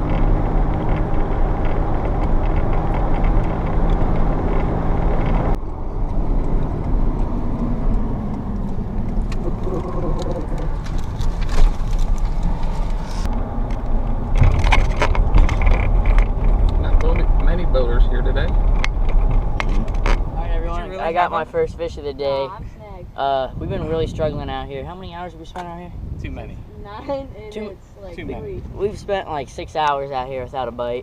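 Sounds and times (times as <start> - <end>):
engine pitch rising and falling: 0.0 - 18.8
vehicle engine running steadily: 0.0 - 21.5.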